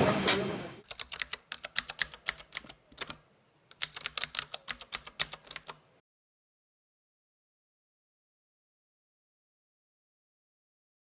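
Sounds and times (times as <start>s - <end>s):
rapid keyboard typing clicks: 0.8s - 5.8s.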